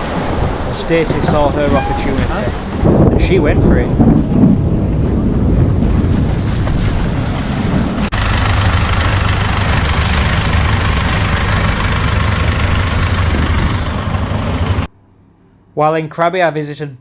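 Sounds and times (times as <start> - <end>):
boat engine running loudly: 8.2 - 14.9.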